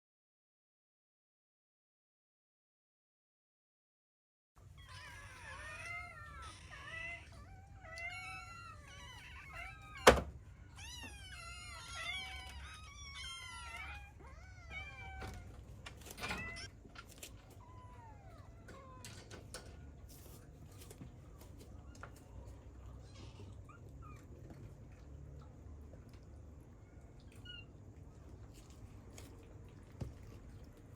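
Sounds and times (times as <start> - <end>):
kittens mewing: 4.7 - 19.3.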